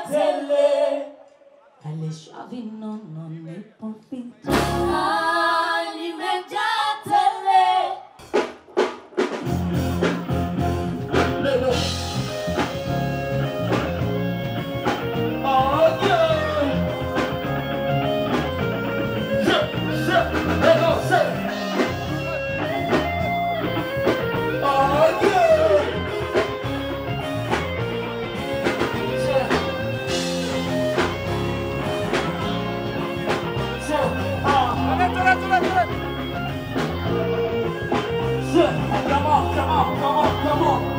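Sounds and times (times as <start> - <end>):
bass: 1.8 - 7.3, 9.2 - 40.9
drums beat: 8.2 - 40.9
guitar lines: 9.4 - 40.9.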